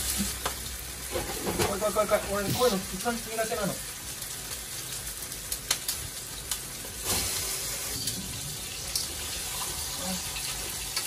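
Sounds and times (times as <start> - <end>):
chicken sizzling in frying pan: 0.0 - 11.0.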